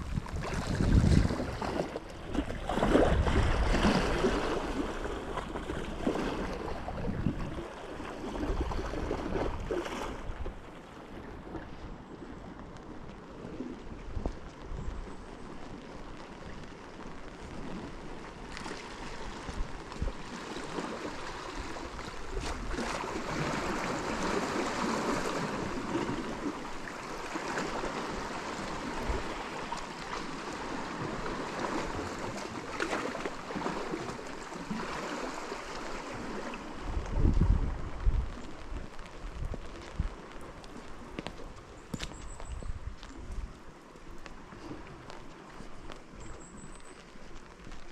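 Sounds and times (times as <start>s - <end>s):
rushing water: 0.0s - 47.9s
faint ticks: 38.3s - 47.9s.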